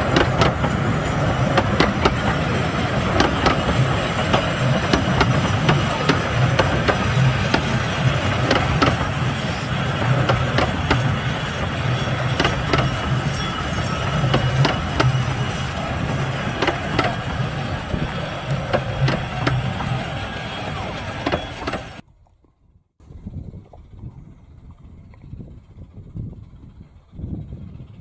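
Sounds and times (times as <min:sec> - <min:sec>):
rail joint clicks: 0:00.0 - 0:22.0
train wheels rumbling: 0:00.0 - 0:22.0.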